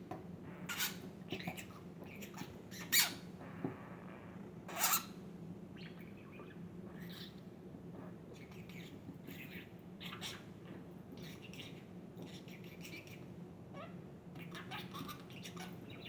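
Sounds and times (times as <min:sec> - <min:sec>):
budgerigar squawks: 0:04.7 - 0:05.1.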